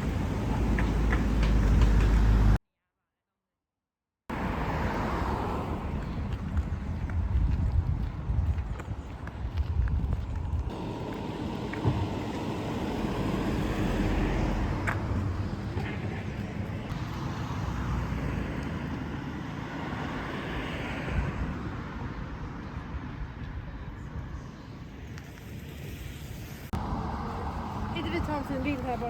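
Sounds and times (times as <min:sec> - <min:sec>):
road traffic hum: 0:00.0 - 0:02.6, 0:04.3 - 0:29.0
car passing by: 0:04.3 - 0:06.8, 0:10.7 - 0:22.6.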